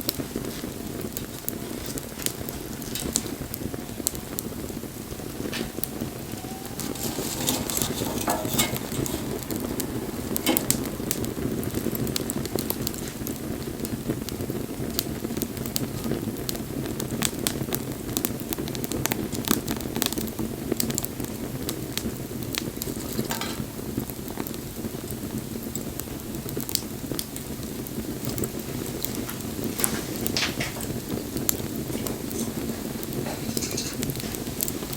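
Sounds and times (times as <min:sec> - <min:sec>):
sharp fire pops: 0:00.0 - 0:34.9
wood bonfire crackling: 0:00.0 - 0:34.9
low rushing noise: 0:02.0 - 0:14.3.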